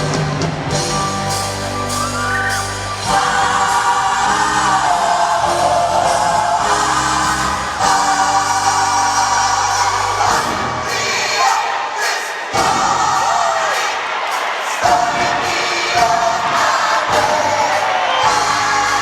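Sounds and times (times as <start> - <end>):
instrumental chords: 0.0 - 11.0
gospel choir singing: 0.7 - 19.0.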